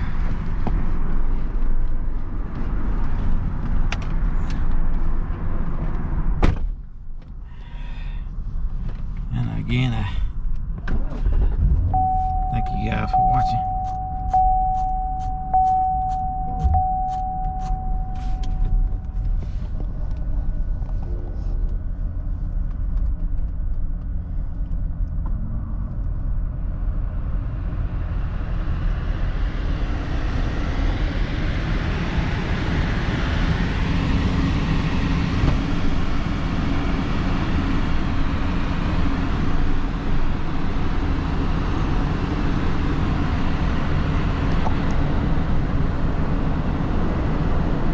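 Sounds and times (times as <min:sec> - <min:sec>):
car engine and road rumble: 0:00.0 - 0:47.9
steady beep: 0:11.9 - 0:19.4.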